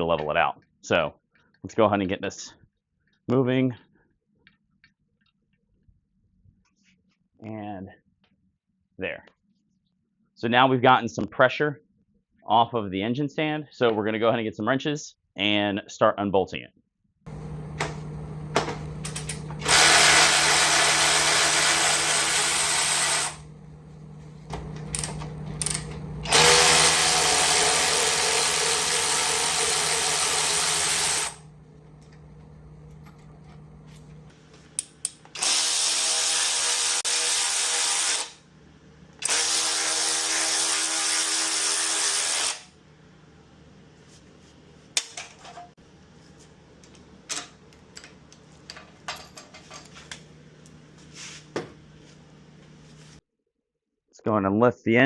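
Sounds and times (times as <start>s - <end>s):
power tool whirring: 17.3s - 38.4s, 39.2s - 42.7s.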